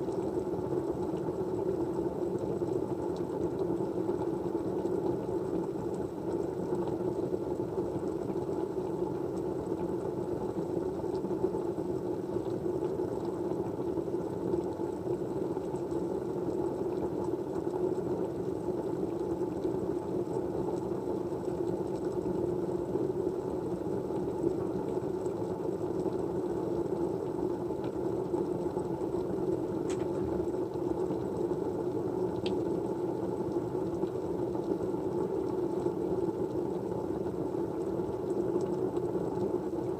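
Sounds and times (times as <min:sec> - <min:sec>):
steady white noise: 0:00.0 - 0:39.9
faint clicks: 0:32.4 - 0:32.6.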